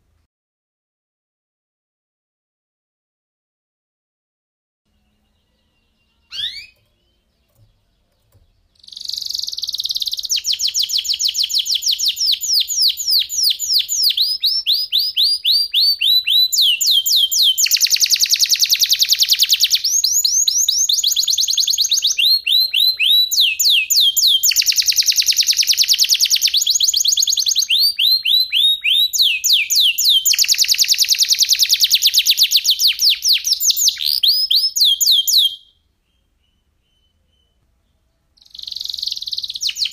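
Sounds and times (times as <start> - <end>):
canary singing trills: 4.9 - 39.9
short bird chirp: 5.0 - 15.4, 38.4 - 39.9.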